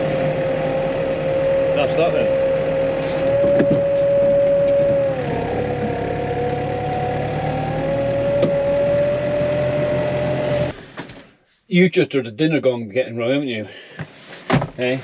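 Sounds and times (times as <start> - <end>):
tractor engine whining: 0.0 - 11.3.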